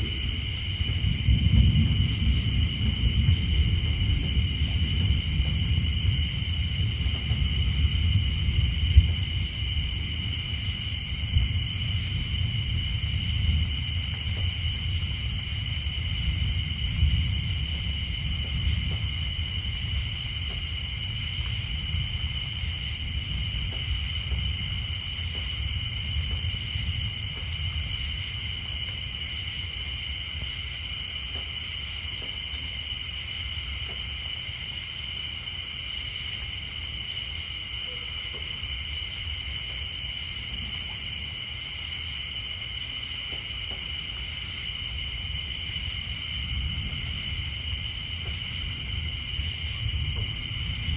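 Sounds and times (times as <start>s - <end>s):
distant thunder rumble: 0.0s - 30.4s, 42.6s - 50.9s
insects and tree frogs trilling: 0.0s - 50.9s.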